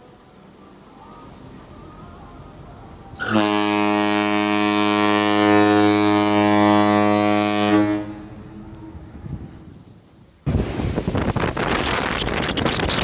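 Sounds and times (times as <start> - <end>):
ship's horn long deep blast: 2.4 - 9.7.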